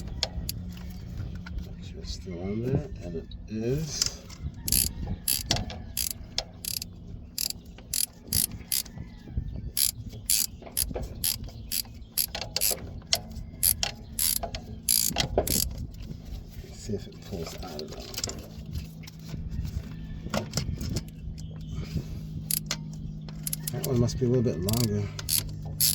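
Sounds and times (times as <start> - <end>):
ratchet wrench clicking: 4.7 - 8.9, 9.8 - 12.8, 13.6 - 15.7, 22.5 - 22.8, 23.4 - 24.0, 24.7 - 25.9.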